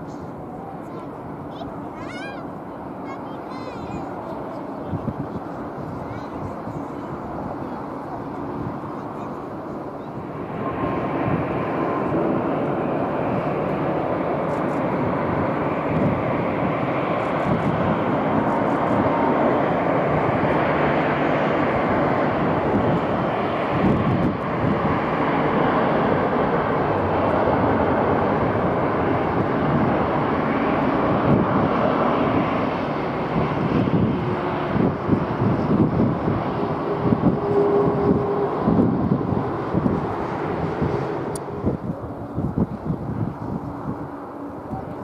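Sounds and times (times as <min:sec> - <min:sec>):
jet engines roaring: 0:00.0 - 0:45.0.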